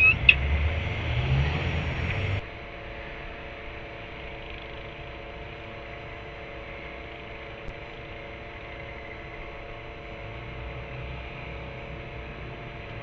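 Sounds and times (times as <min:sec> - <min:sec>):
constant tones: 0:00.0 - 0:02.4.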